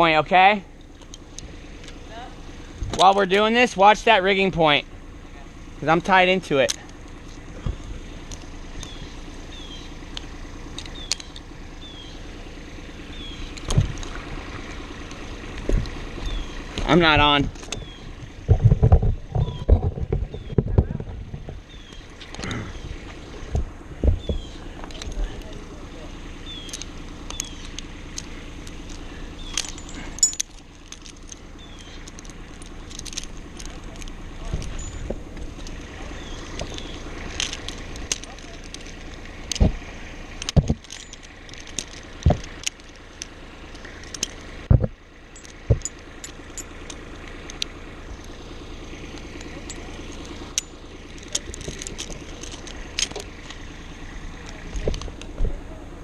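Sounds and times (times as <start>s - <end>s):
low engine hum: 0.0s - 56.0s
sharp clicks: 6.0s - 12.2s, 26.4s - 55.5s
metallic clinks of climbing hardware: 26.4s - 44.5s, 45.2s - 55.3s.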